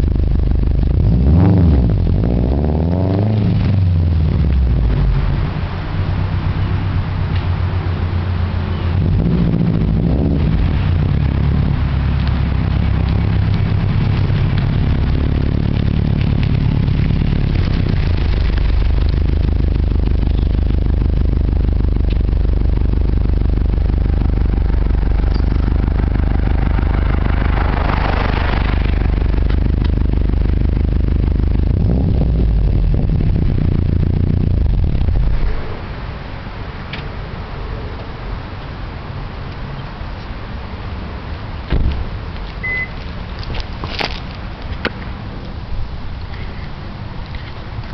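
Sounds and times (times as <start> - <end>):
loud car exhaust note: 0.0 - 36.8.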